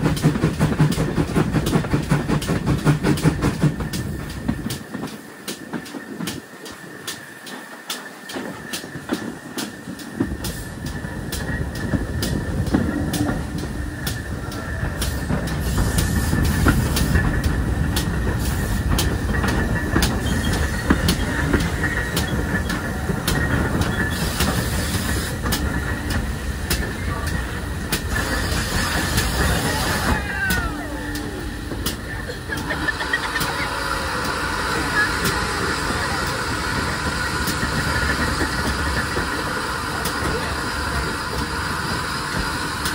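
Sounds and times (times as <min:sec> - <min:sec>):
train rumble: 0:00.0 - 0:42.9
train wheels clicking over rail joints: 0:00.0 - 0:42.9
high wheel squeal: 0:19.4 - 0:26.0.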